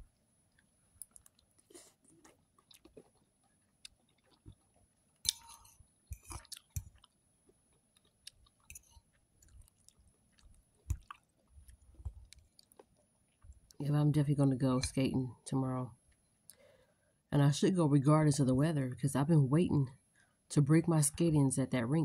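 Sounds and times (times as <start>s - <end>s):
person chewing food: 0.0s - 13.8s.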